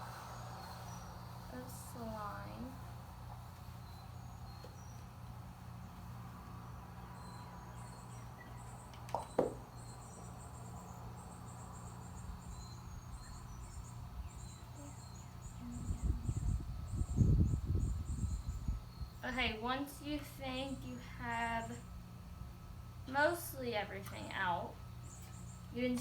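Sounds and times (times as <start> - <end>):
low steady hum: 0.0 - 26.0
faint high-pitched chirping: 3.6 - 5.2, 5.8 - 19.3
brief knock: 9.1 - 9.6.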